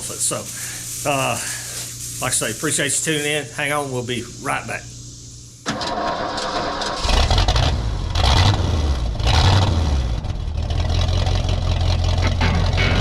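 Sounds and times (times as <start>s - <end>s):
engine rumbling: 7.0s - 13.0s.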